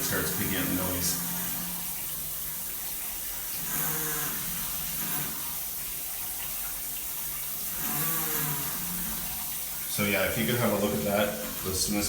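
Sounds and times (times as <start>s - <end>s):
shower water running: 0.0s - 12.0s.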